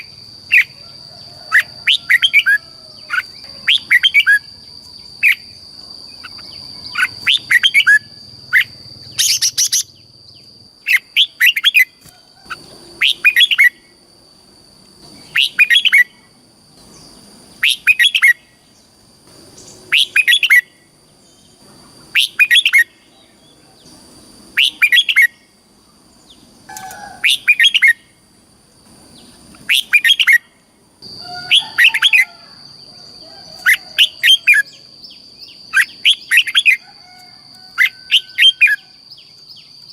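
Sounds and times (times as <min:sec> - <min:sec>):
bird singing warbled phrases: 0:01.5 - 0:13.9, 0:15.0 - 0:19.0, 0:19.6 - 0:24.0, 0:24.6 - 0:25.5, 0:26.2 - 0:28.1, 0:29.2 - 0:32.4, 0:33.5 - 0:36.8.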